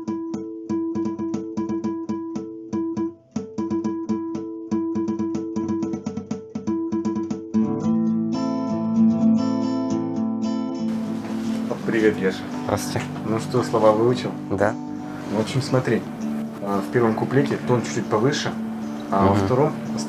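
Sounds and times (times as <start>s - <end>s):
acoustic guitar picking: 10.9s - 20.0s
sustained guitar chords: 10.9s - 20.0s.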